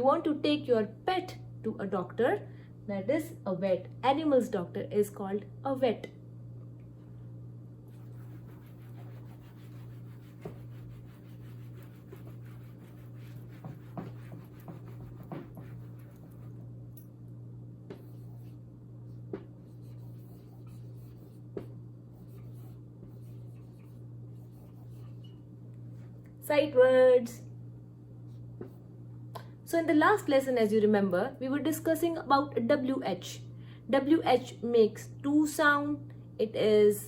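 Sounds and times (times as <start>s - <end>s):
steady low hum: 0.0s - 37.0s
pen scratching writing strokes: 7.9s - 16.6s, 19.6s - 25.2s.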